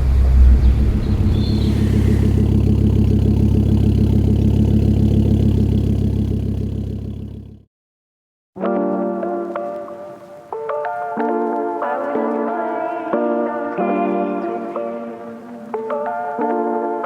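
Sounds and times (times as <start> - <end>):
car engine running: 0.0 - 7.7.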